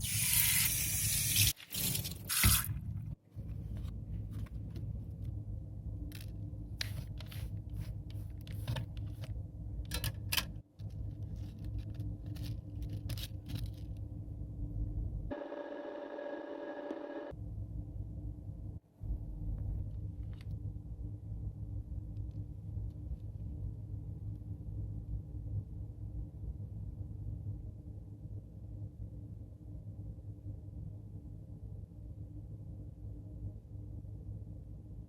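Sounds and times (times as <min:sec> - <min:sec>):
steady low hum: 0:02.1 - 0:35.0
small clicks and scrapes: 0:09.9 - 0:14.0.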